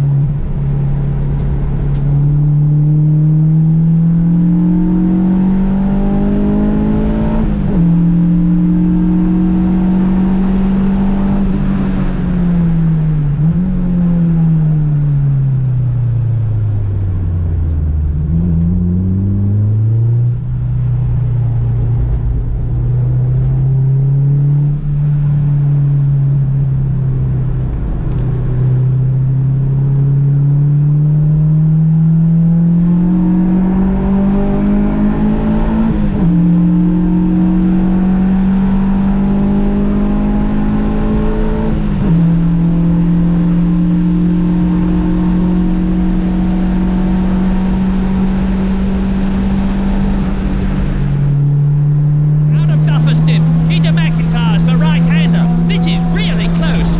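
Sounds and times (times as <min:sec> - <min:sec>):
car engine revving under load: 0:00.4 - 0:14.5, 0:30.3 - 0:56.9.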